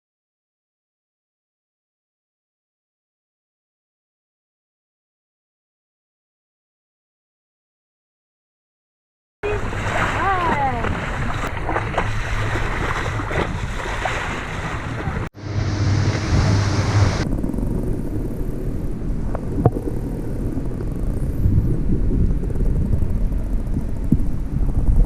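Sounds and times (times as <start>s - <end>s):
water rushing past: 9.4s - 17.2s
low engine rumble: 9.4s - 25.0s
wind buffeting microphone: 9.4s - 25.0s.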